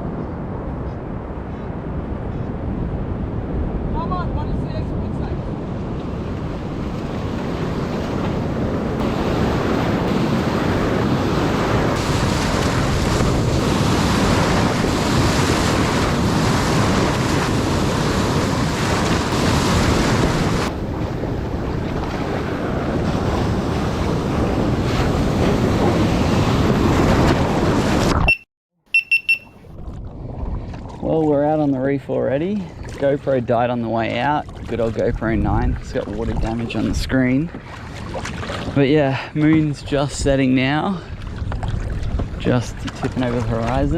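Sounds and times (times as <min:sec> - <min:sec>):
wind noise on microphone: 0:00.0 - 0:31.3, 0:33.9 - 0:43.9
sea water rushing around kayak: 0:02.8 - 0:28.4, 0:29.1 - 0:43.9
short high beeps: 0:28.2 - 0:29.6.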